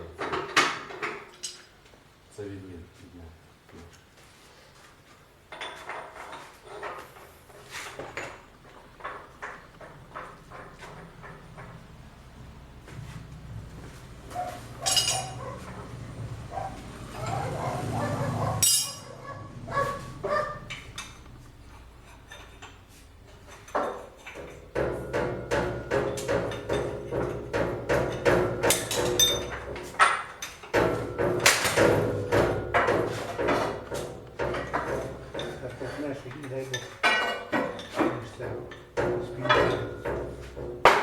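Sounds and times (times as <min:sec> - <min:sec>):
metal tools knocking and clinking: 0:14.8 - 0:15.8, 0:18.6 - 0:19.1, 0:20.3 - 0:41.0.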